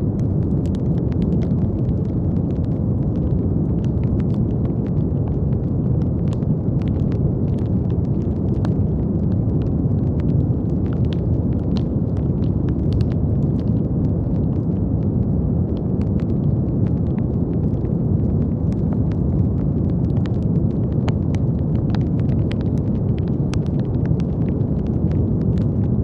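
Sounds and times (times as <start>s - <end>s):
brown noise rumble: 0.0s - 26.0s
faint crackling clicks: 0.1s - 14.8s, 15.7s - 26.0s.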